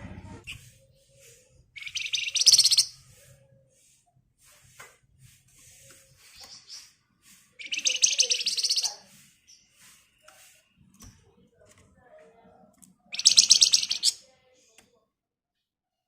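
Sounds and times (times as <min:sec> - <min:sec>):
songbird high trill: 0:01.8 - 0:03.0, 0:07.6 - 0:09.0, 0:13.1 - 0:14.1.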